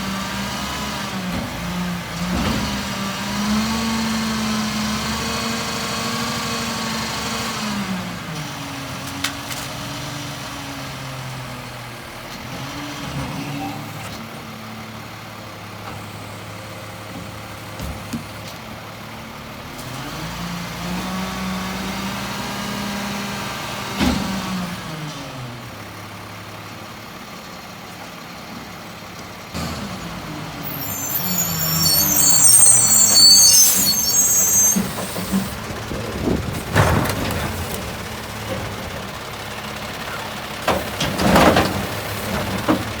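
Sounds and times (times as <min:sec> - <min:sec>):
truck engine revving: 0:29.6 - 0:42.9
high brake squeal: 0:30.0 - 0:35.7.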